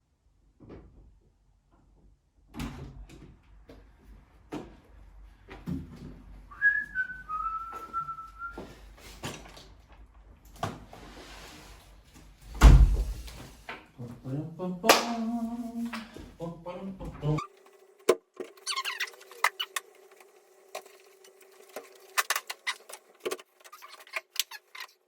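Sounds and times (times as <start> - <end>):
short high whistling tone: 6.5 - 8.6
loud thump: 12.6 - 13.3.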